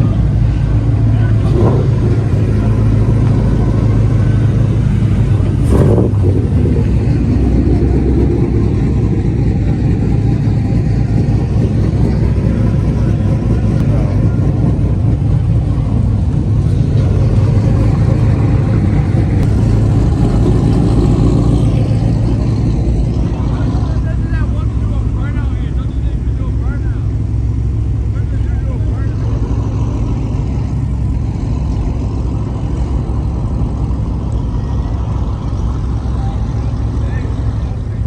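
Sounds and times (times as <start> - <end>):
car engine rumbling: 0.0 - 38.0.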